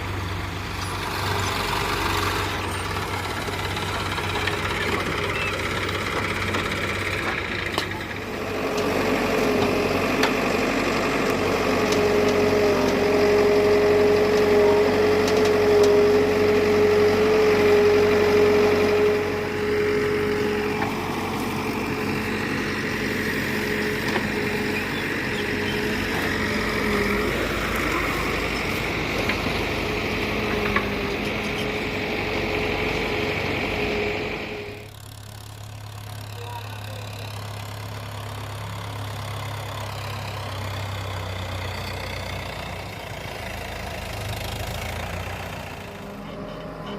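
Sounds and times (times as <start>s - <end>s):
diesel tractor engine running: 0.0s - 46.9s.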